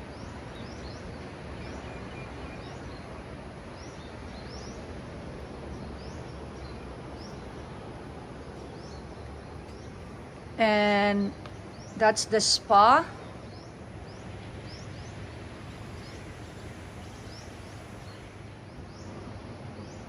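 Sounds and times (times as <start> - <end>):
steady rushing noise: 0.0 - 20.0
bird chirping: 11.0 - 20.0.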